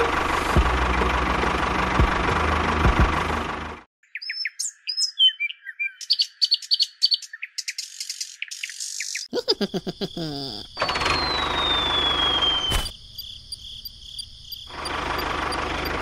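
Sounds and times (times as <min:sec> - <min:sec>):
tractor engine running: 0:00.0 - 0:03.9, 0:10.8 - 0:12.9, 0:14.7 - 0:16.0
birds chirping: 0:04.0 - 0:16.0.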